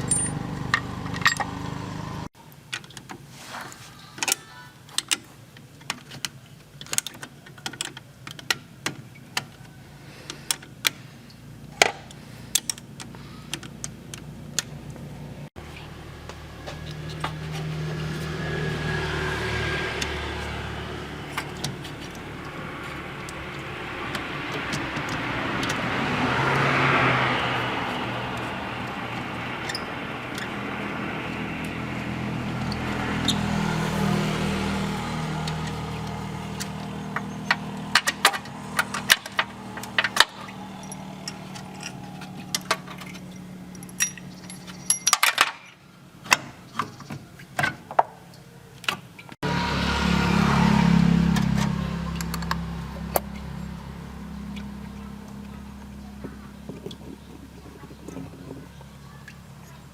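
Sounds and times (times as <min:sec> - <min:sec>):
metal clinks and clicks: 0:00.0 - 0:01.5, 0:37.2 - 0:45.8.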